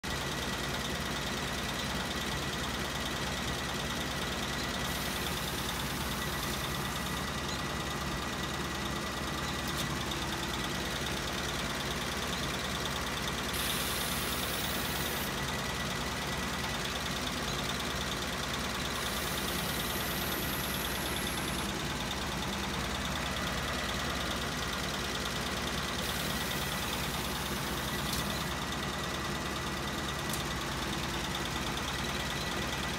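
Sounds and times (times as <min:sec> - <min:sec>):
car engine idling: 0:00.0 - 0:32.9
air suspension hissing: 0:13.5 - 0:15.3.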